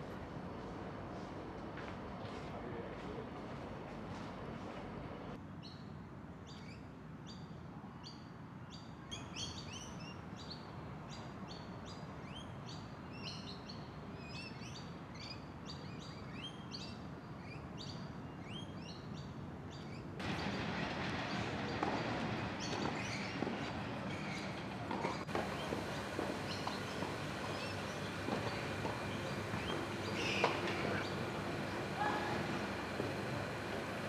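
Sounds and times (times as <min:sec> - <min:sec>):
small birds chirping: 0:08.0 - 0:34.0.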